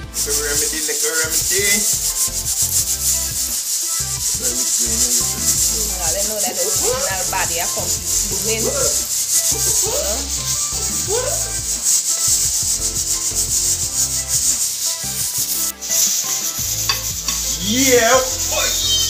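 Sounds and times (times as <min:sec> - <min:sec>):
lobster frying in butter: 0:00.0 - 0:19.0.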